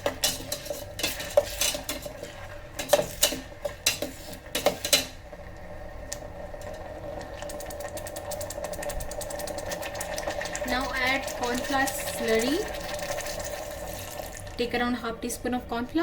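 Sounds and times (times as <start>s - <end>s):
spoon clinking and scraping pot: 0.0s - 5.2s.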